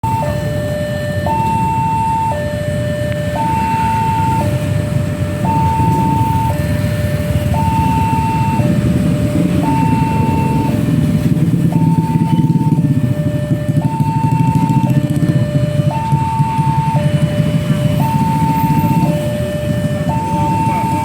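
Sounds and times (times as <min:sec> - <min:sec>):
two-tone level crossing alarm: 0:00.0 - 0:21.0.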